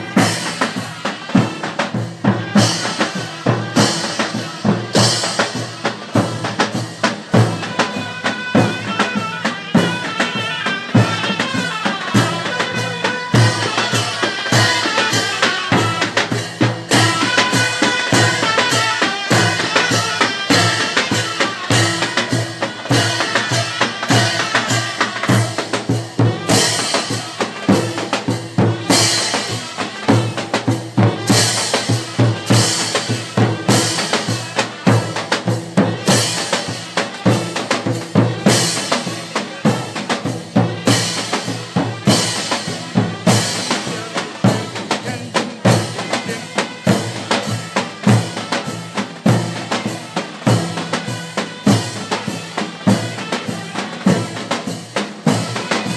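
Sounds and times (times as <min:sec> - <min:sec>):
big drums beating march rhythm: 0:00.0 - 0:55.9
wind instrument melody: 0:00.0 - 0:55.9.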